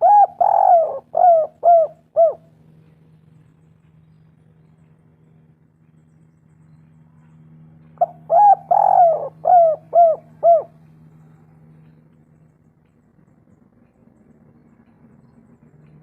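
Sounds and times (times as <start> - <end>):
dove cooing: 0.0 - 2.6, 8.0 - 10.9
steady low hum: 0.0 - 16.0.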